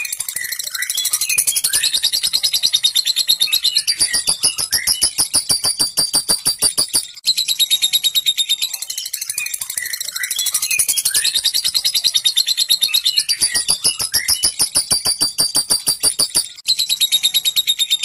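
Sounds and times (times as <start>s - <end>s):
lovebird chattering trill: 3.5s - 7.1s, 13.0s - 16.5s.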